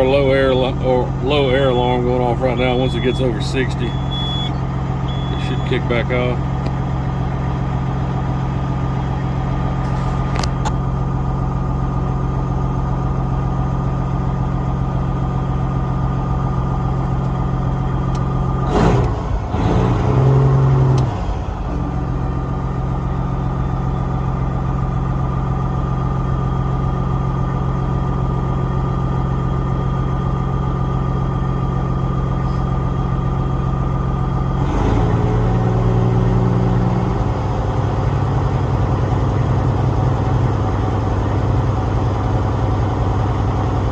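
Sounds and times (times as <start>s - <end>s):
diesel engine idling: 0.0s - 43.9s
warning buzzer steady high tone: 2.6s - 5.8s.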